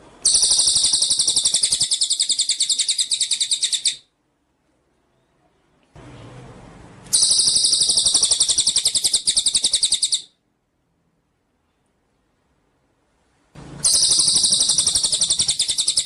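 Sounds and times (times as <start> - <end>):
high-pitched bird trill: 0.2 - 4.1, 7.1 - 10.3, 13.8 - 16.0.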